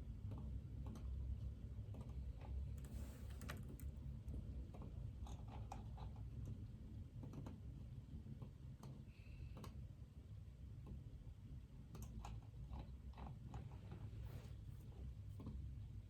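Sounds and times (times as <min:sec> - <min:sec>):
typing on computer keyboard: 0:02.7 - 0:04.0.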